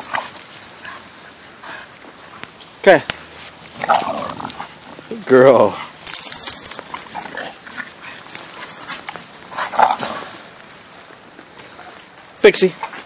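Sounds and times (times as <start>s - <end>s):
clicks and rustles of dog moving: 6.0s - 13.0s.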